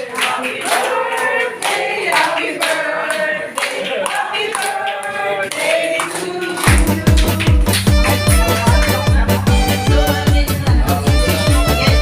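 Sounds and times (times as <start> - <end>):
hand clapping: 0.0 - 9.6
group of people singing: 0.0 - 12.0.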